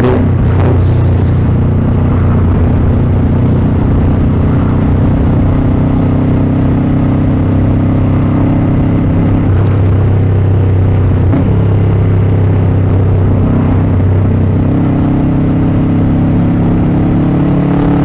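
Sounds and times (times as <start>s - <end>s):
motorcycle engine running: 0.0s - 6.7s
road noise: 0.0s - 7.7s.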